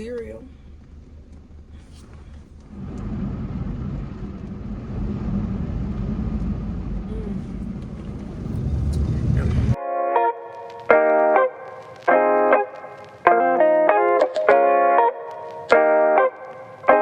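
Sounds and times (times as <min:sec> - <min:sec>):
car wash machinery rumble: 0:00.0 - 0:09.8.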